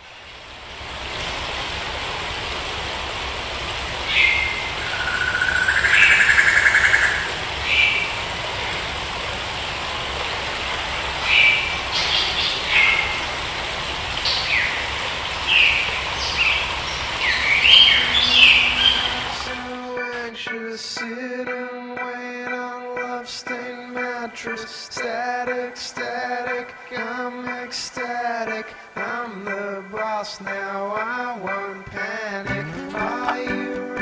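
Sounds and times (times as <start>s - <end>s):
bird chirps and buzzy call: 15.5s - 19.5s.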